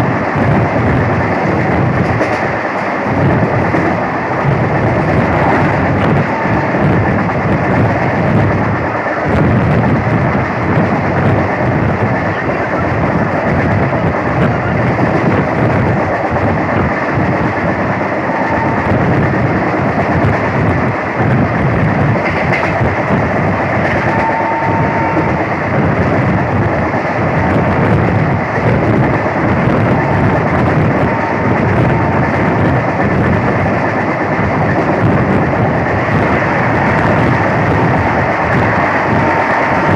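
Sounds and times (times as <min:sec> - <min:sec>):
train coach rumbling and rattling: 0:00.0 - 0:39.9.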